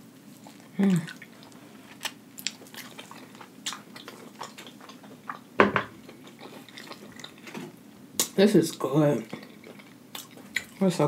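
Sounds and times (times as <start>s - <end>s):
crunchy chewing: 0.3s - 7.6s, 8.2s - 11.0s
wet mouth sounds: 0.4s - 5.4s.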